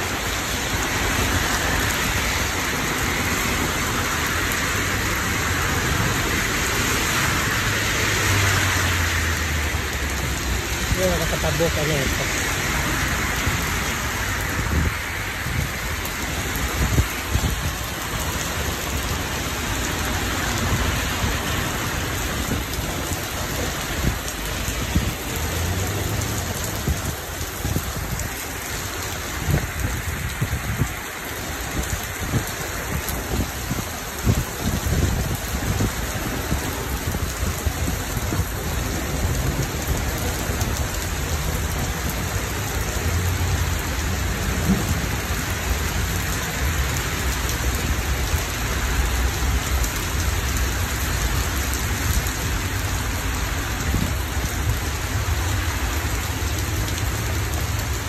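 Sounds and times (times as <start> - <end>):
heavy rain on leaves and pavement: 0.0 - 58.0.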